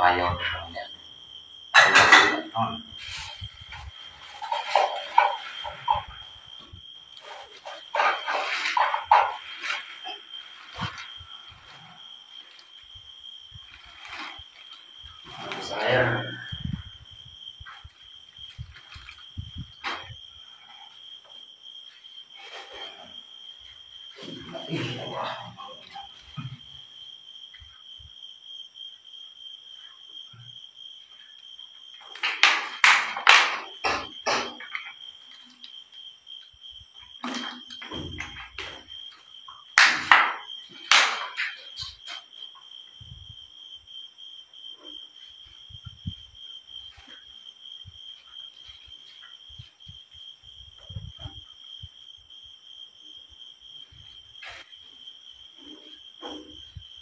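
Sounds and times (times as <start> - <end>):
crickets chirring: 0.0 - 57.0
insects trilling: 0.0 - 57.0
handling thuds and knocks: 32.0 - 35.0, 37.2 - 42.3, 50.6 - 51.5.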